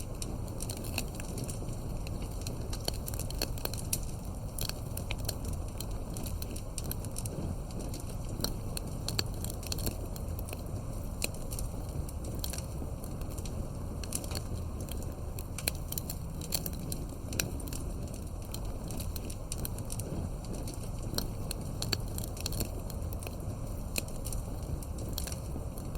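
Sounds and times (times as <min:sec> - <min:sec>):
low rumble of burning: 0:00.0 - 0:25.9
wood fire crackling and popping: 0:00.0 - 0:25.9.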